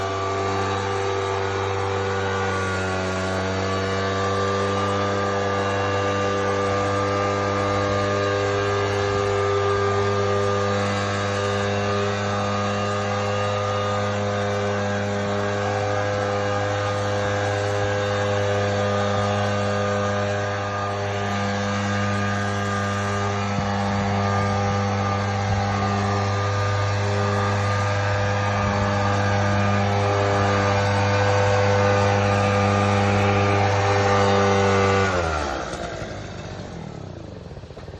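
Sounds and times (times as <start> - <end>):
engine-powered blower running: 0.0 - 37.9.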